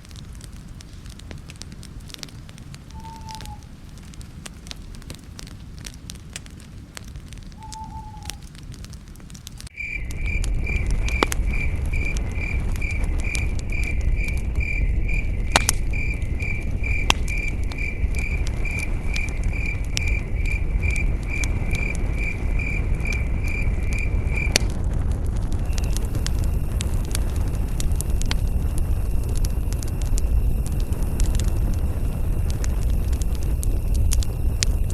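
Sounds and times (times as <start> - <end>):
campfire crackling and popping: 0.0 - 34.9
cricket chirping: 2.9 - 3.6, 7.6 - 8.4, 9.7 - 24.6, 25.6 - 34.9
low rumble: 6.8 - 34.9.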